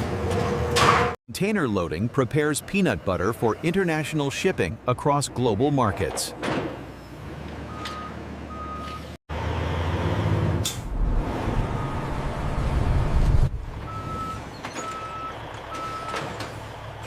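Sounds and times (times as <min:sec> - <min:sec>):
heavy vehicle engine rumbling: 0:06.7 - 0:17.0
reversing alarm beeping: 0:07.7 - 0:09.2, 0:11.6 - 0:12.2, 0:13.9 - 0:16.3.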